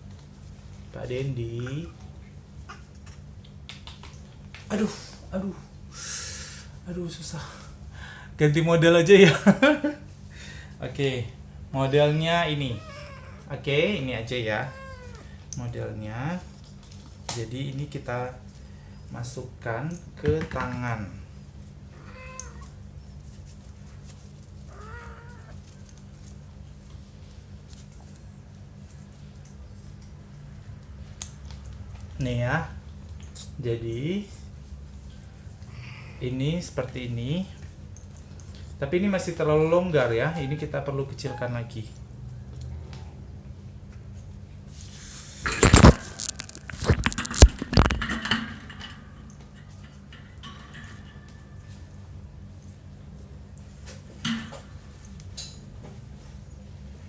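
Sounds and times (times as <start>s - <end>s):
cat meowing: 12.5s - 13.5s, 14.4s - 15.4s, 21.9s - 22.8s, 24.7s - 25.6s, 40.2s - 41.4s
harness straps rustling and scraping: 44.7s - 48.0s.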